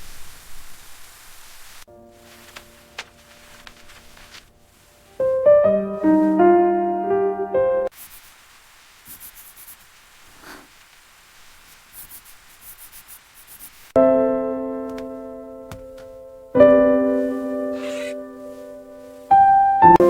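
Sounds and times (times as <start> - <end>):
faint hiss: 0.0 - 20.0
soft piano chords: 1.9 - 3.7, 5.2 - 7.9, 14.0 - 20.0.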